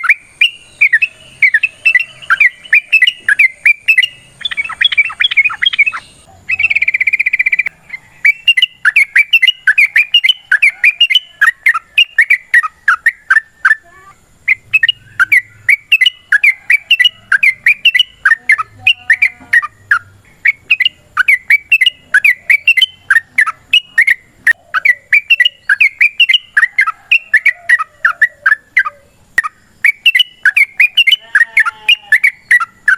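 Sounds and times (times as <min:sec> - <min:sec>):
bulbul singing bubbling phrases: 0:00.0 - 0:32.9.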